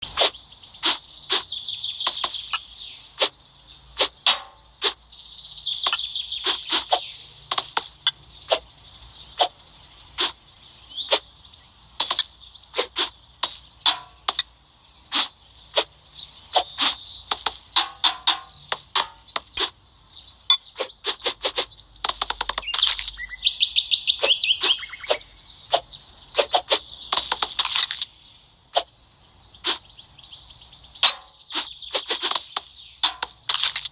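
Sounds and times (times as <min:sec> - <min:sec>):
blade cutting crunchy material: 0:02.1 - 0:02.5, 0:06.5 - 0:08.7, 0:31.6 - 0:33.9.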